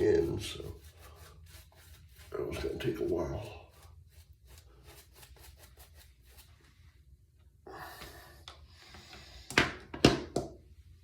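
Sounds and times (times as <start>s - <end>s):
shaving brush swishing lather: 0.0s - 7.0s.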